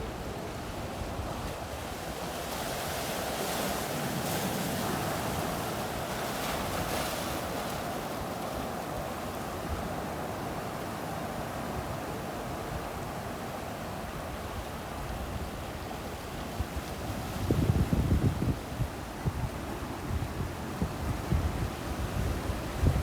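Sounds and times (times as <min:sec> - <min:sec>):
ocean surf breaking on beach: 0:00.0 - 0:23.0
wind buffeting microphone: 0:16.6 - 0:23.0.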